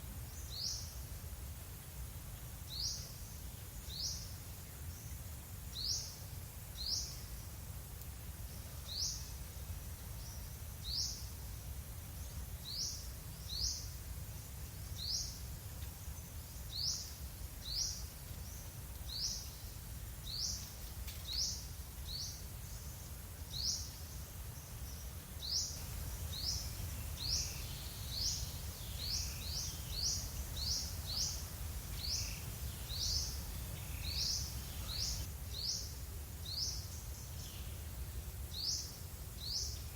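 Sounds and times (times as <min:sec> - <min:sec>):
bird chirping: 0:26.3 - 0:35.8.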